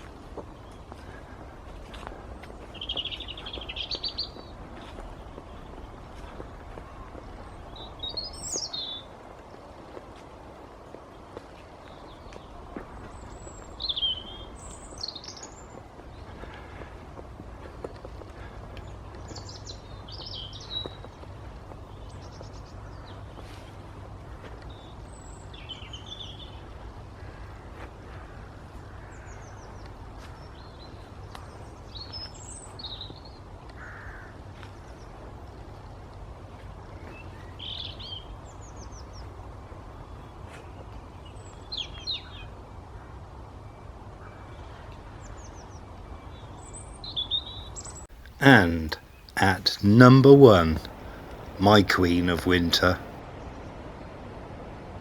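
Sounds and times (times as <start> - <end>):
small birds chirping and trilling: 0.6 - 6.6, 7.4 - 9.1.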